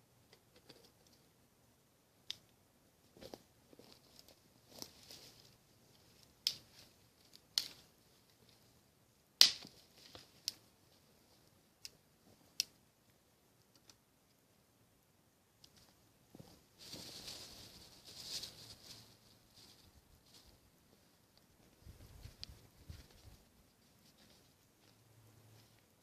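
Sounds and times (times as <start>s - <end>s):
sharp clicks and snaps: 2.2s - 2.6s, 11.8s - 12.8s, 13.6s - 14.4s, 15.6s - 16.0s.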